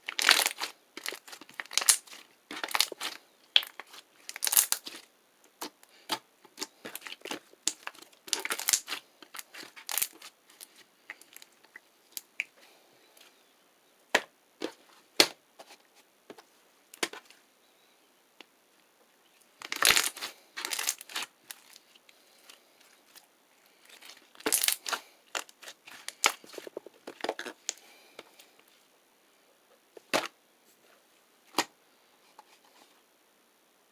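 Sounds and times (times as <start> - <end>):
crinkling and crushing: 0.0 - 13.4, 14.1 - 17.4, 18.7 - 28.8.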